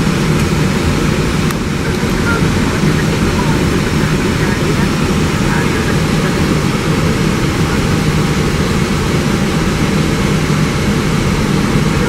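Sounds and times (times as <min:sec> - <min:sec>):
airflow and engine noise: 0:00.0 - 0:12.0
low steady hum: 0:00.0 - 0:12.0.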